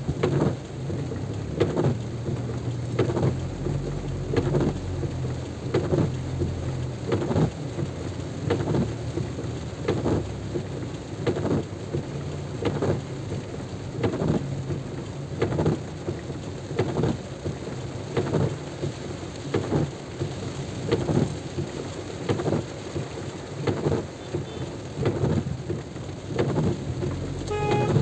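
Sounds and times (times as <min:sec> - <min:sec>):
heavy rain: 0:00.0 - 0:28.0.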